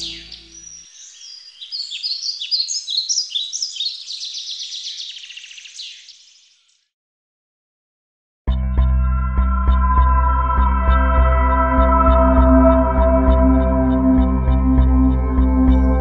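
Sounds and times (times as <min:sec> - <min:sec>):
small bird chirping and trilling: 0:00.0 - 0:06.9.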